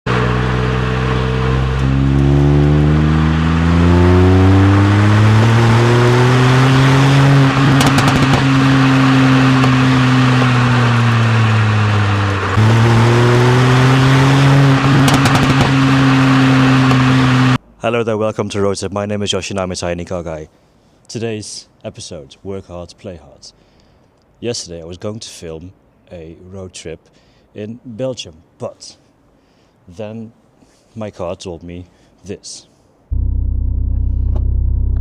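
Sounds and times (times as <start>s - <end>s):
car engine accelerating: 0.1s - 17.6s, 33.1s - 35.0s.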